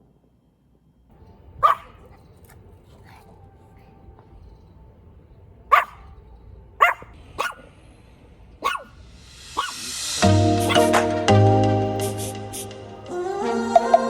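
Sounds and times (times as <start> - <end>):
dog barking: 1.6 - 7.7, 8.6 - 9.0, 9.6 - 10.0, 10.6 - 11.0
music: 8.6 - 14.0.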